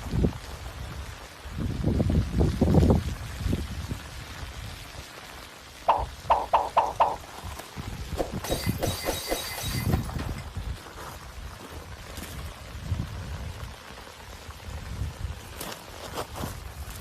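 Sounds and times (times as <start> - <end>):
lava crackling and popping: 10.5 - 17.0.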